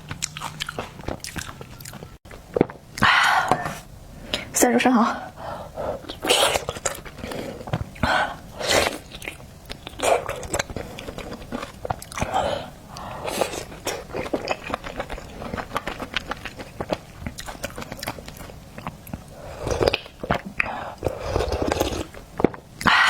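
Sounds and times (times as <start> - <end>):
wet chewing clicks: 0.0 - 2.4, 8.9 - 23.0
wet mouth eating sounds: 0.0 - 4.5, 6.0 - 23.0.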